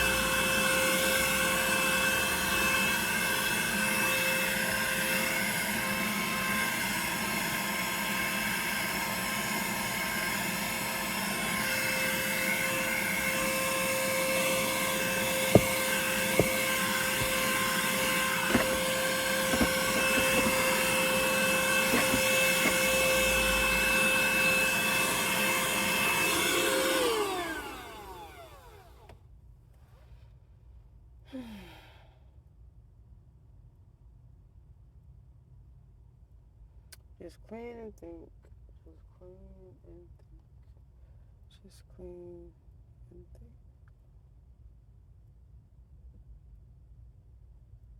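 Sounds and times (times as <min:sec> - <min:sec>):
vacuum cleaner running: 0:00.0 - 0:29.1.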